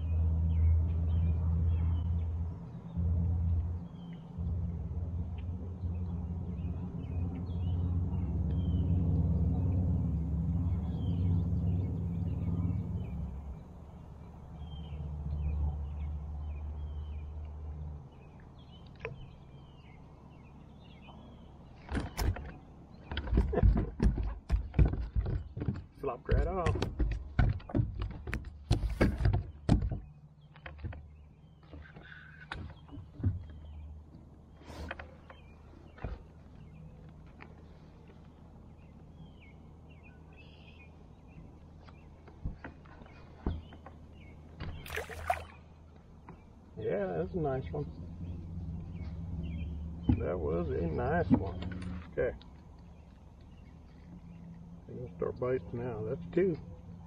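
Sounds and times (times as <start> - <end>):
low rumble: 0.0 - 17.0
low steady hum: 0.0 - 21.5
small birds chirping: 0.0 - 57.0
dull knocks: 23.1 - 31.0.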